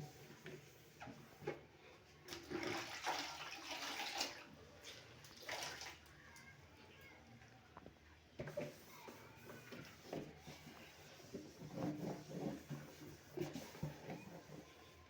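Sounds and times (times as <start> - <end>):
cloth rinsed in bucket of water: 0.0 - 6.5, 8.5 - 15.0.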